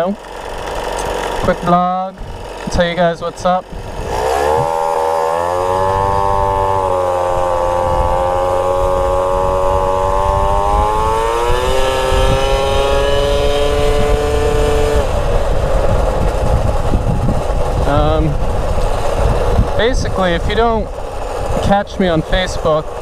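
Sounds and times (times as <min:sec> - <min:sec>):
moped engine running: 0:00.0 - 0:23.0
person speaking: 0:01.0 - 0:03.7, 0:19.7 - 0:21.0, 0:21.6 - 0:23.0.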